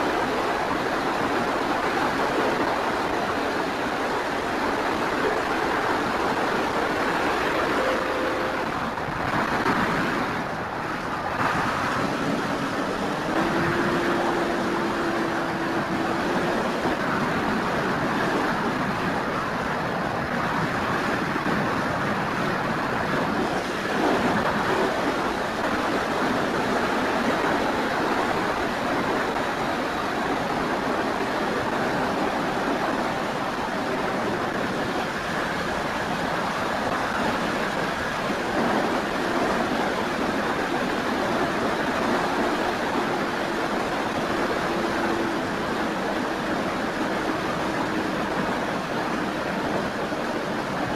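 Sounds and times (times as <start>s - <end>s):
wind noise over microphone: 0.0s - 50.9s
electric motor and propeller hum: 5.4s - 19.2s.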